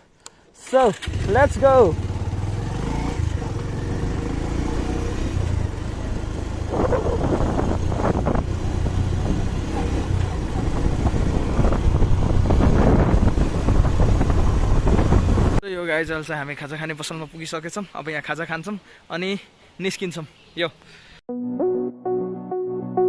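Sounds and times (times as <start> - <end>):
road and wind noise: 1.0 - 15.6
vehicle engine rumbling: 1.0 - 15.6.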